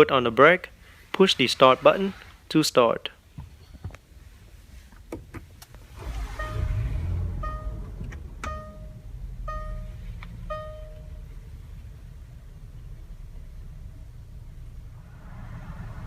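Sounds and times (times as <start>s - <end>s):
car engine starting and idling: 5.0s - 16.0s
dashboard warning chime: 6.2s - 11.3s.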